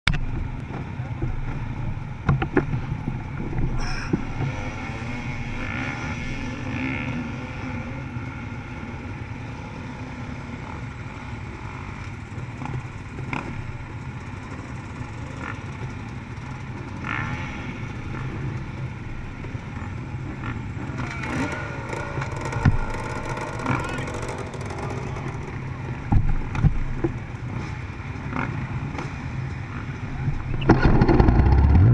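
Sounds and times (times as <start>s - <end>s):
knocks and clatters: 0.1s - 4.6s, 21.0s - 31.9s
dirt bike engine running: 0.1s - 31.9s.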